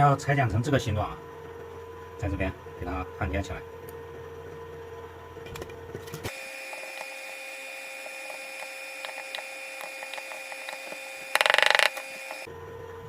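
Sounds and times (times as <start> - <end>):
electrical hum: 0.0 - 13.0
spot welder buzzing pulse: 6.3 - 12.5
small ticks: 8.2 - 12.5.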